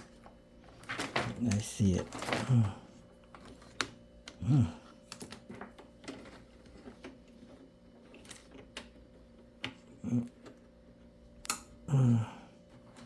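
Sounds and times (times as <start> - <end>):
short low voice: 4.4 - 4.8, 11.9 - 12.5.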